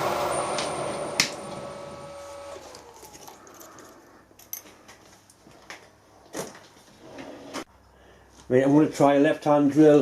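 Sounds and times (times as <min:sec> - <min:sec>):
machine spindle winding down: 0:00.0 - 0:03.1.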